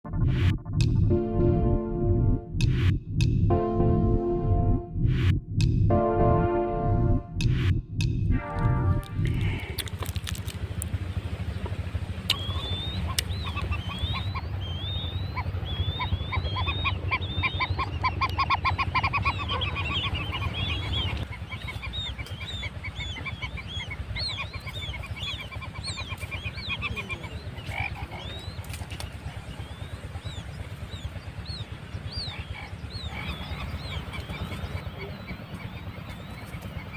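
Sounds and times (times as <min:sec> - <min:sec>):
low background rumble: 0:00.0 - 0:36.9
quail chicks peeping: 0:12.3 - 0:36.9.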